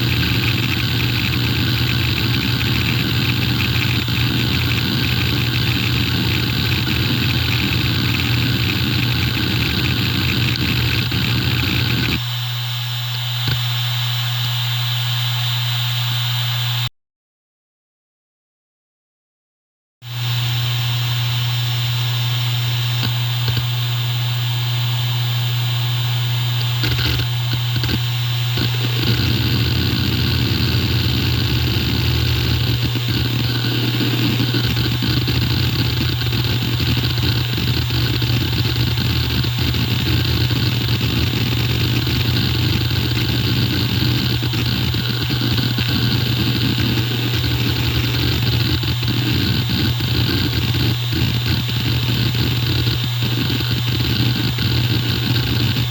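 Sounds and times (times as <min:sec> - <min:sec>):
hard drive seek clicking: 0:00.0 - 0:12.2, 0:23.0 - 0:23.7, 0:26.6 - 0:55.9
hard drive spinning hum: 0:00.0 - 0:14.8, 0:20.2 - 0:55.9.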